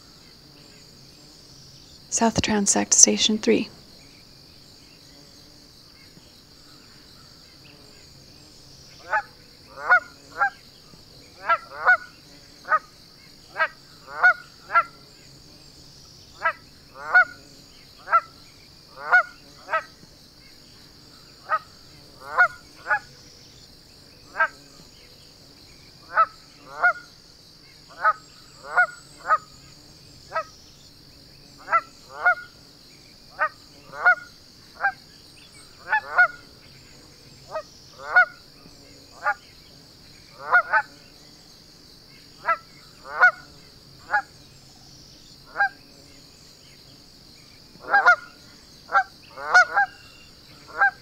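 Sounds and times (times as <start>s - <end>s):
high-pitched insect drone: 0.0s - 51.0s.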